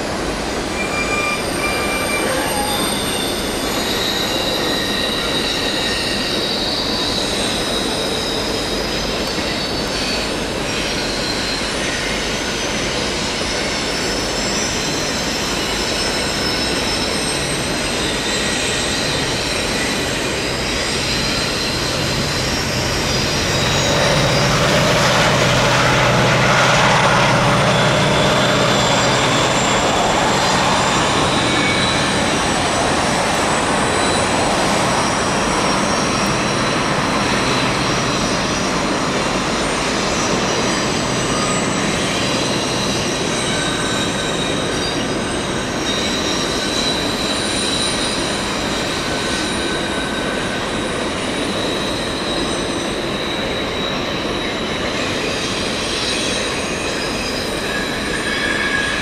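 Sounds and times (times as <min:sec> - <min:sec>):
diesel locomotive engine hum: 0:00.0 - 0:59.0
freight car wheel squeal: 0:00.4 - 0:59.0.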